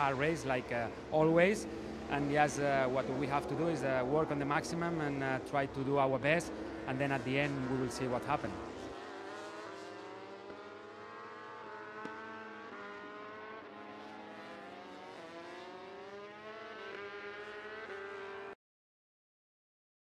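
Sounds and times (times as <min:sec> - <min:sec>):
racing motorcycle engines revving: 0:00.0 - 0:18.6.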